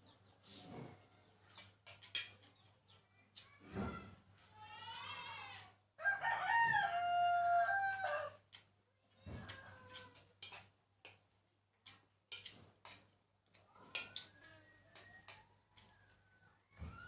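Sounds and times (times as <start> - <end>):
rooster crowing: 6.0 - 8.4.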